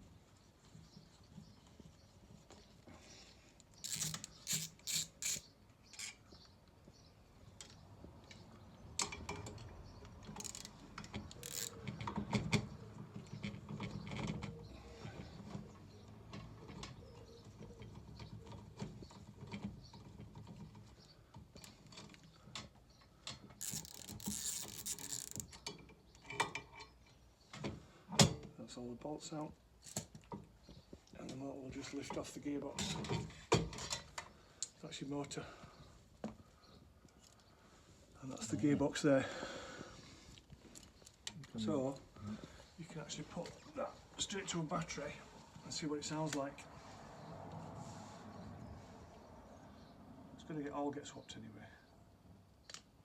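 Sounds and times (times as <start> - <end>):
ratchet spanner clicking: 3.8 - 5.4, 10.4 - 11.8, 23.6 - 25.5.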